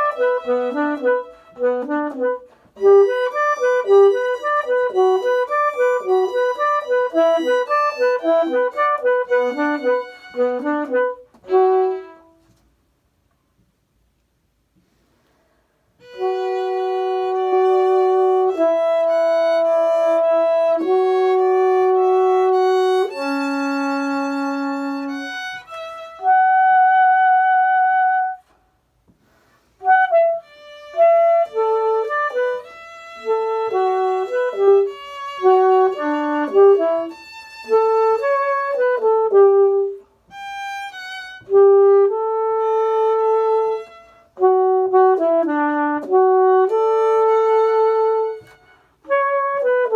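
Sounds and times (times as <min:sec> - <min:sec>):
violin: 0:00.0 - 0:01.9, 0:02.8 - 0:12.6, 0:16.0 - 0:26.4, 0:30.4 - 0:38.8, 0:40.3 - 0:41.6, 0:42.6 - 0:44.4, 0:46.7 - 0:49.0
saxophone: 0:00.0 - 0:12.7, 0:16.0 - 0:28.6, 0:29.8 - 0:49.9.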